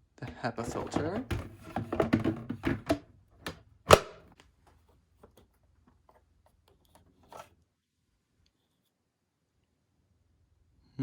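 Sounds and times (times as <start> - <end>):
sharp plastic snap: 3.9 - 4.3.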